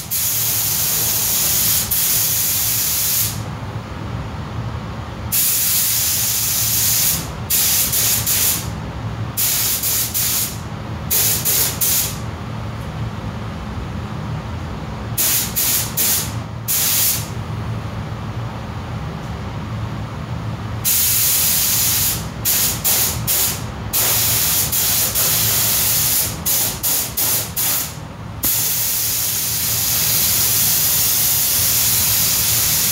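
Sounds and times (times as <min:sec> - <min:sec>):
paint spray gun hissing: 0:00.0 - 0:03.4, 0:05.3 - 0:08.6, 0:09.4 - 0:12.2, 0:15.2 - 0:17.3, 0:20.9 - 0:32.9.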